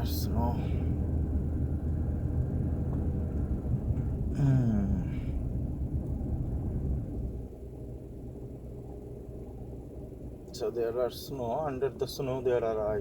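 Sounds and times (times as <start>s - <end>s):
car tyres and engine rumbling: 0.0s - 13.0s
short vocal sound: 4.4s - 5.2s.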